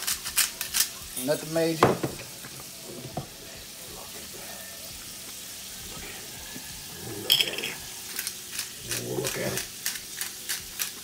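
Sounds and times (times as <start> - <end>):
vegetables sizzling in a skillet: 0.0 - 11.0.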